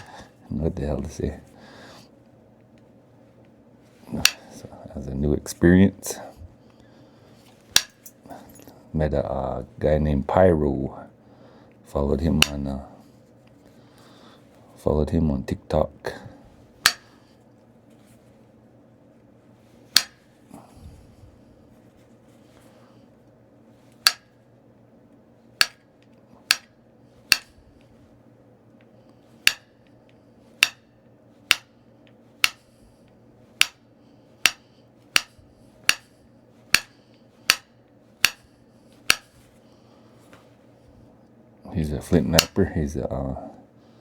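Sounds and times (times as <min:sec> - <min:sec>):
tool striking stone clicks: 0:04.2 - 0:04.5, 0:07.7 - 0:08.2, 0:12.4 - 0:12.6, 0:16.8 - 0:17.1, 0:19.9 - 0:20.3, 0:24.0 - 0:24.4, 0:25.6 - 0:27.6, 0:29.4 - 0:29.9, 0:30.6 - 0:30.9, 0:31.5 - 0:31.7, 0:32.4 - 0:32.7, 0:33.6 - 0:33.8, 0:34.4 - 0:39.4, 0:42.4 - 0:42.6.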